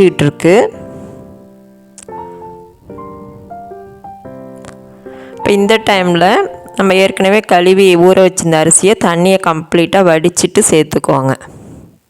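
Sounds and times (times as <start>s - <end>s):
piano music: 0.0s - 8.0s.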